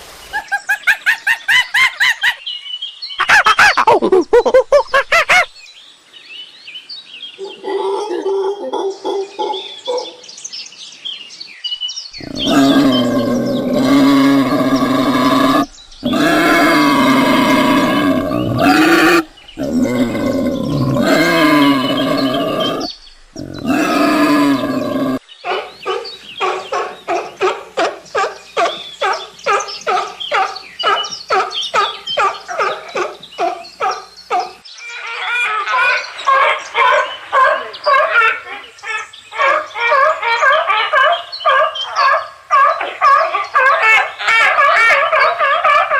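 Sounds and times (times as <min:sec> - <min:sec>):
long loud animal calls: 0:12.2 - 0:25.2.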